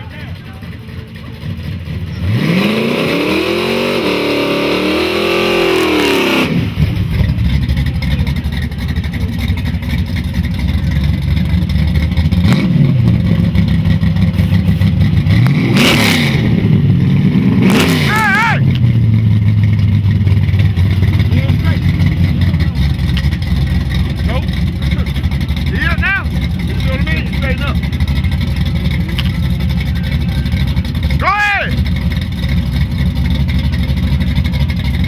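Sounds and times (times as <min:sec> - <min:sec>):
car engine idling: 0:00.0 - 0:35.0
engine throttle blips: 0:00.0 - 0:35.0
car engine revving hard: 0:01.8 - 0:07.3, 0:12.2 - 0:31.3.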